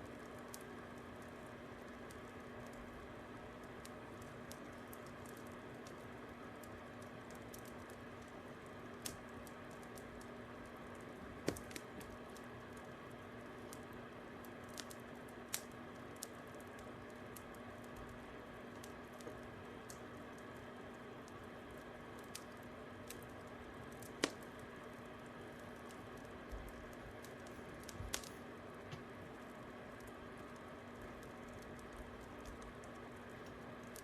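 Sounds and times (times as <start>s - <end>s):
fire crackling and popping: 0.0s - 34.0s.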